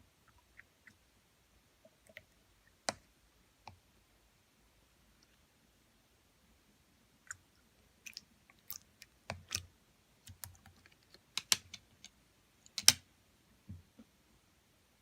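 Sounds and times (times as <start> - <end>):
clicks and taps: 10.3 - 13.0.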